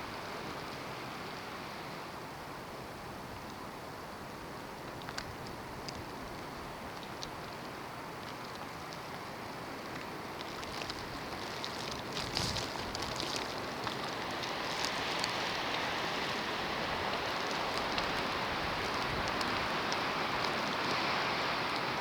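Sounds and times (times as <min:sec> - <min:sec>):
small ticks: 0:17.0 - 0:21.0.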